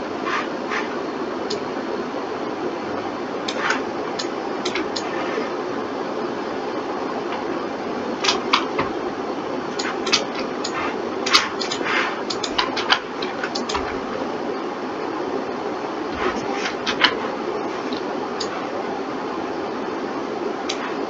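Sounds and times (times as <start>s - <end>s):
steady fan hum: 0.0s - 21.0s
mouse and keyboard clicks: 8.2s - 8.8s, 9.8s - 13.9s.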